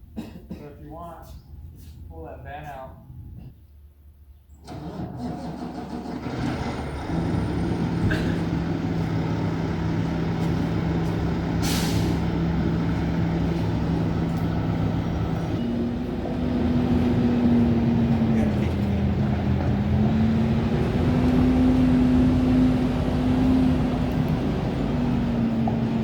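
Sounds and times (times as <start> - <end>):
vehicle engine running: 6.2 - 26.0
air hiss: 11.6 - 12.2.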